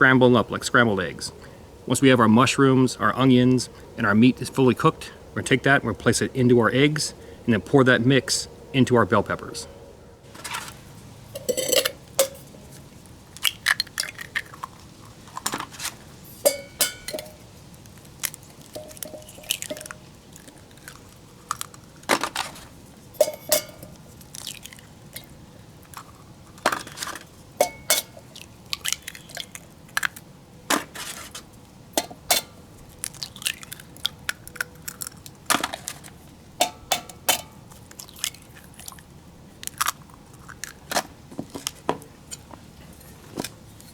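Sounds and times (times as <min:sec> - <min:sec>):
utensils clinking on steel cookware: 0:10.4 - 0:12.7, 0:16.3 - 0:17.4, 0:18.7 - 0:20.1, 0:23.2 - 0:24.0, 0:26.7 - 0:28.3, 0:32.0 - 0:32.6, 0:36.6 - 0:37.6.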